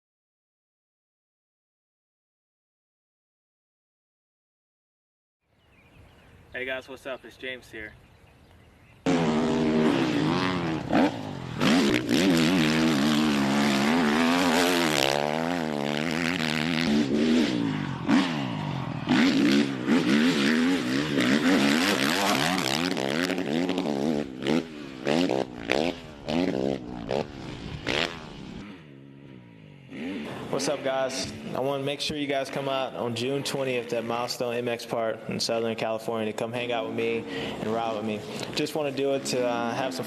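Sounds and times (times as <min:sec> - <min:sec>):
motocross bike engine revving: 0:09.0 - 0:35.9, 0:36.6 - 0:40.0.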